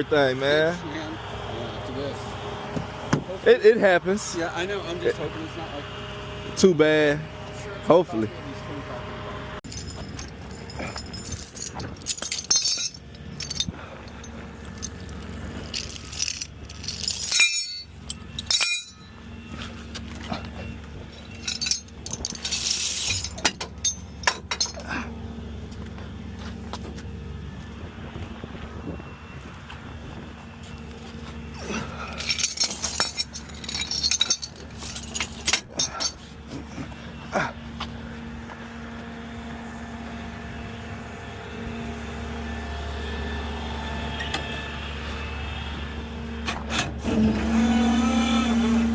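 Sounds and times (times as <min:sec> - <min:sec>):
low engine hum: 0:00.0 - 0:48.9
metallic clinks and rattles: 0:09.6 - 0:19.2, 0:21.1 - 0:25.0, 0:31.8 - 0:36.3.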